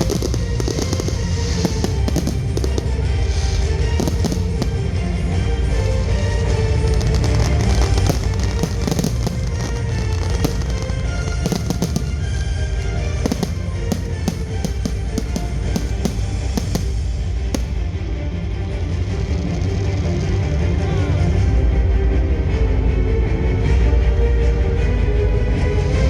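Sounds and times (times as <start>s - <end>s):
fireworks bursting and crackling: 0.0s - 18.2s.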